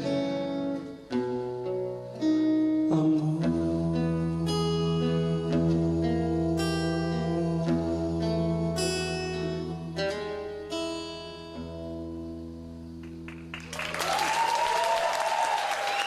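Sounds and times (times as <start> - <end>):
guitar chords strummed: 0.0 - 13.5
audience applause: 13.3 - 16.0
audience cheering: 13.5 - 16.0.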